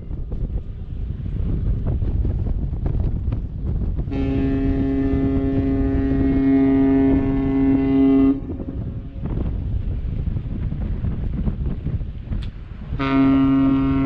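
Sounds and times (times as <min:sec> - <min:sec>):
wind noise on microphone: 0:00.0 - 0:14.0
ship's horn blast: 0:04.0 - 0:09.3, 0:12.8 - 0:14.0.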